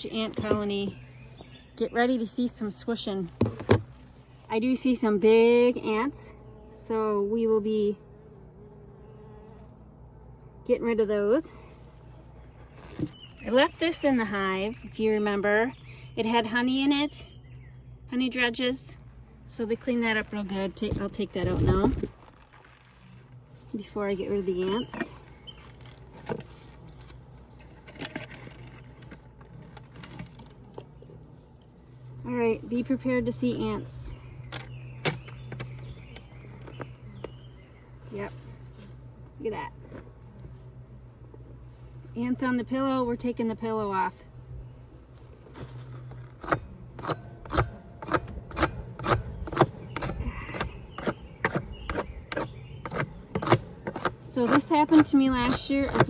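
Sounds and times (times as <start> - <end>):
scraping on wooden hive: 0.0 - 10.1, 11.6 - 15.0, 19.8 - 42.6, 44.6 - 56.0
low steady hum: 0.0 - 56.0
knocks and scrapes on wood: 3.4 - 4.0, 45.5 - 56.0.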